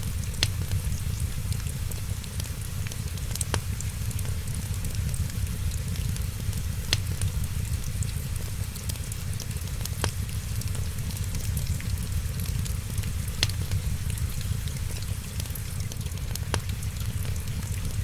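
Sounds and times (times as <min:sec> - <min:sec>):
rain hiss: 0:00.0 - 0:18.0
wood fire crackling: 0:00.0 - 0:18.0
sharp fire pops: 0:00.1 - 0:01.7, 0:03.3 - 0:08.5, 0:09.6 - 0:15.5.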